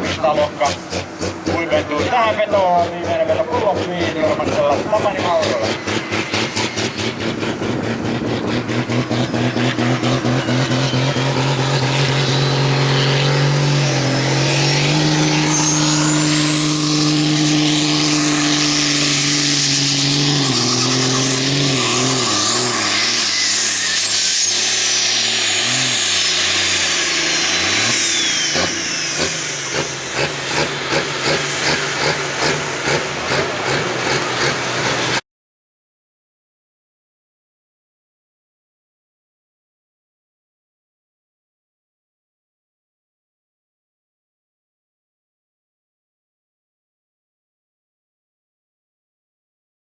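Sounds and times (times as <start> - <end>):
high whine: 0.0 - 35.2
tractor engine at full throttle: 0.0 - 35.2.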